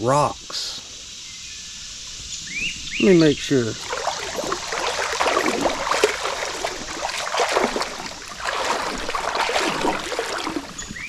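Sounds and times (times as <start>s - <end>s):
water splashing from wading: 3.5s - 11.0s.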